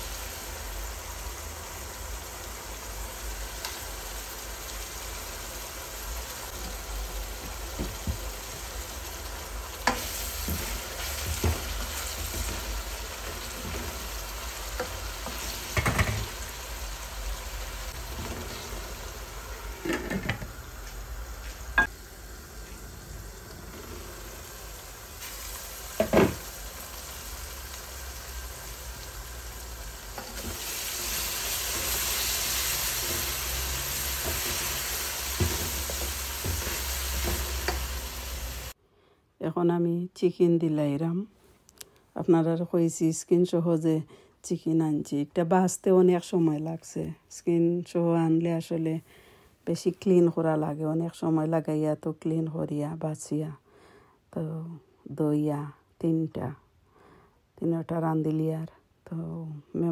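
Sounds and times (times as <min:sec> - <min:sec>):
onions sizzling in hot oil: 0:00.0 - 0:38.8.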